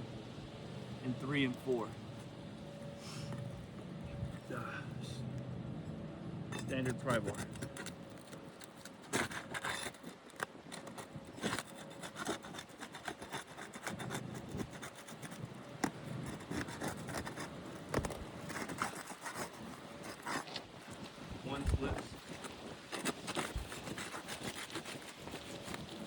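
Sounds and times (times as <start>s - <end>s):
pry bar scraping under shingles: 6.5s - 26.0s.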